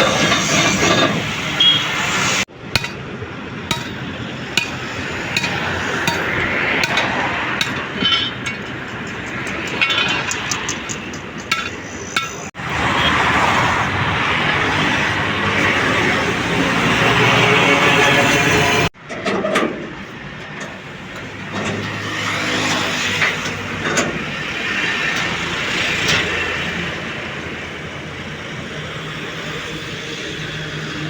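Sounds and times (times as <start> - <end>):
workshop background noise: 0.0 - 28.4
metal clinking: 2.8 - 3.0, 3.7 - 12.5.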